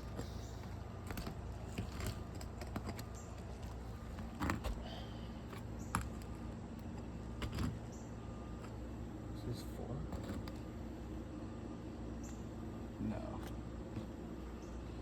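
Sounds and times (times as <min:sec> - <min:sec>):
hand tools clicking and scraping: 0:00.0 - 0:07.8.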